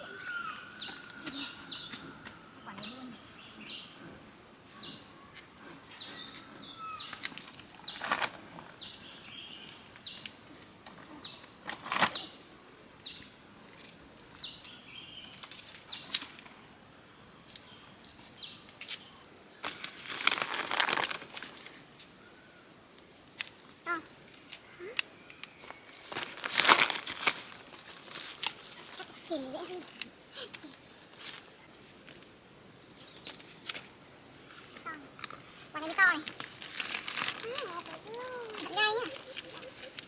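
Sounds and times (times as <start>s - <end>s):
high-pitched insect drone: 0.0s - 40.0s
rustling: 19.3s - 40.0s.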